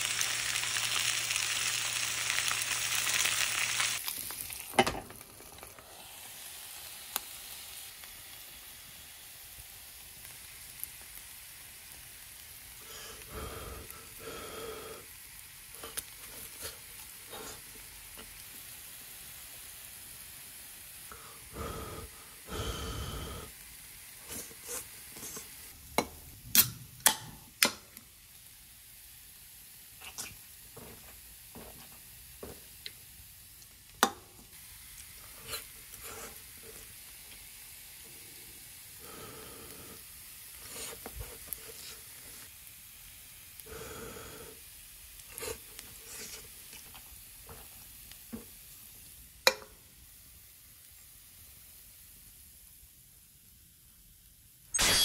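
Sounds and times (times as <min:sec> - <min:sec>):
food sizzling in a pan: 0:00.0 - 0:55.0.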